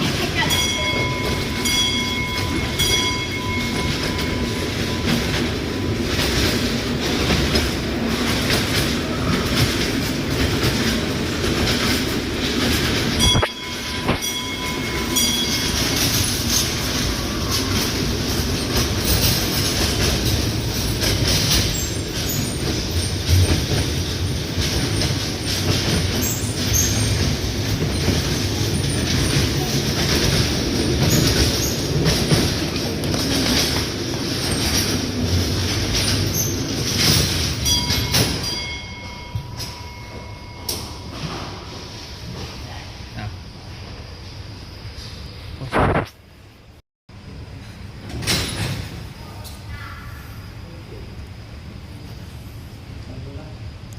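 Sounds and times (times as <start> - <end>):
train rumbling on rails: 0.0 - 53.9
brief high-pitched tones: 13.2 - 14.5.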